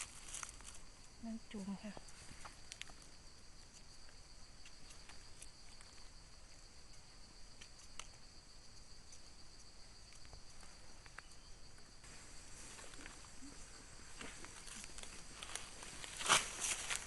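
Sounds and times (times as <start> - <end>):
dry leaf litter crackling: 0.0 - 0.8, 14.4 - 17.0.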